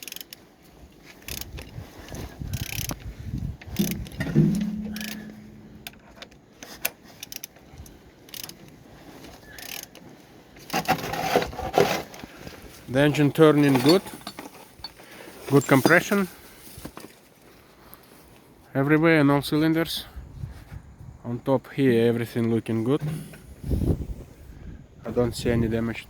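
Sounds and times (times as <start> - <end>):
engine turned over by hand: 3.6 - 6.0
sharp metallic knock: 3.8 - 5.8.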